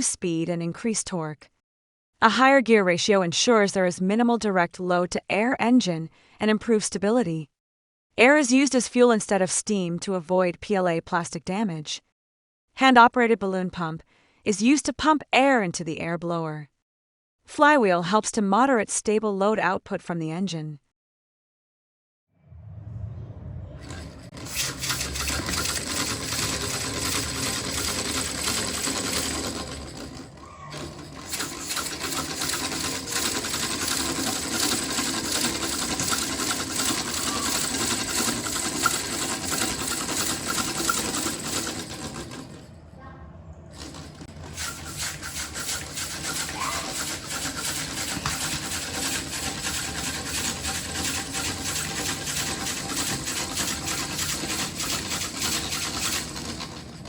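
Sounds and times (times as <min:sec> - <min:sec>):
small air engine clattering: 0:23.8 - 0:42.8, 0:43.7 - 0:57.0.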